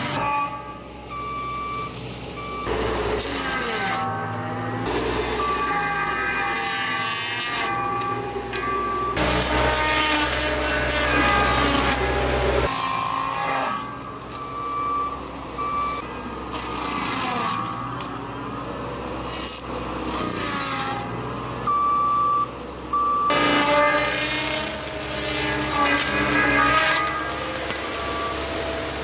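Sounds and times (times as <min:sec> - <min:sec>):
skid-steer loader running: 0:00.0 - 0:29.0
reversing alarm beep: 0:01.1 - 0:02.9, 0:05.2 - 0:06.6, 0:07.5 - 0:09.4, 0:14.3 - 0:16.1, 0:21.7 - 0:23.4.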